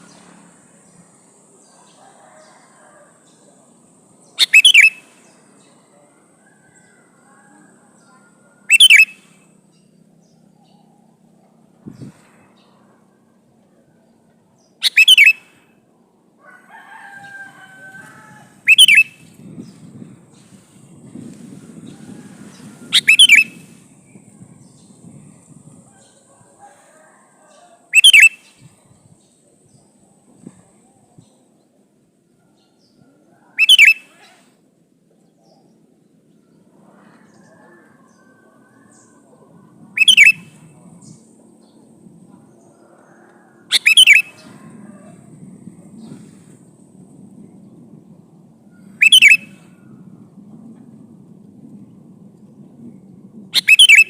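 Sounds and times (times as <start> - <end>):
faint drawn-out bird call: 1.6 - 11.2, 11.8 - 15.8, 16.4 - 19.8, 20.4 - 28.8, 32.4 - 34.6, 36.4 - 45.3, 48.7 - 50.0, 53.5 - 54.0
bird chirping: 4.2 - 6.0, 8.0 - 12.8, 14.6 - 15.5, 18.6 - 20.5, 22.5 - 26.3, 27.9 - 30.0, 40.0 - 41.9, 43.7 - 44.5, 48.8 - 49.6, 53.6 - 54.0
bulbul warbling: 22.9 - 23.6.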